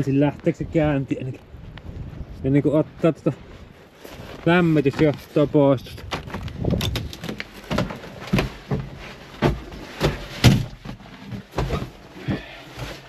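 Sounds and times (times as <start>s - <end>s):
sharp knocks and clunks: 6.0s - 12.6s.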